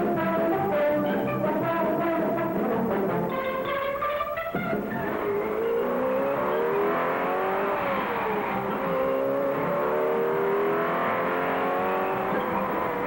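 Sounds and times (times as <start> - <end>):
racing engine revving: 4.6 - 13.0.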